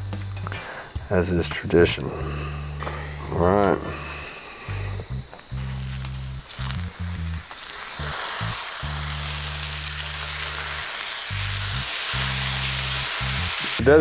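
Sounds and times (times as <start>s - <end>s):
fish sizzling in a pan: 5.4s - 14.0s.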